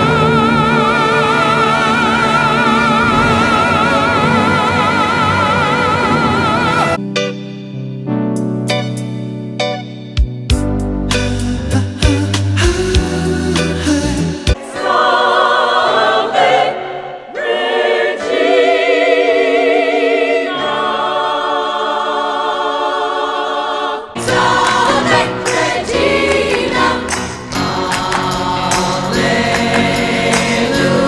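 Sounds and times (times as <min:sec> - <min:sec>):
choir singing long notes: 0:00.0 - 0:07.0, 0:14.6 - 0:31.0
backing music with a beat: 0:10.0 - 0:14.6, 0:24.2 - 0:31.0.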